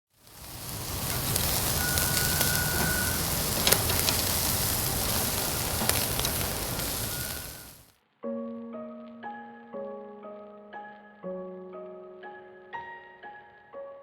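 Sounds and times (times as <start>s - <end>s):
grill fire hissing and crackling: 0.1s - 8.0s.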